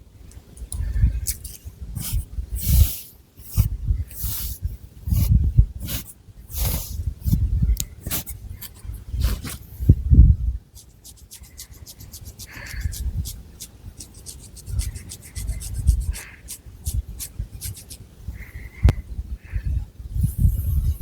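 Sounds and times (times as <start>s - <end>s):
fingernails scratching through hair: 10.8s - 18.0s.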